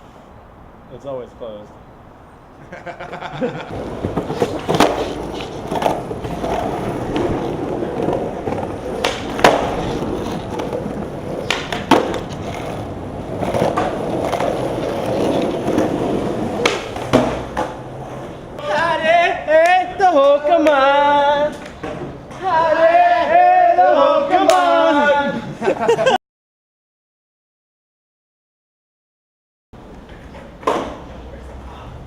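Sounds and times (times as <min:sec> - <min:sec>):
skateboard wheels rolling on pavement: 0:00.0 - 0:26.2, 0:29.8 - 0:32.0
skateboard clacking on ground: 0:03.7 - 0:22.9, 0:29.9 - 0:31.2.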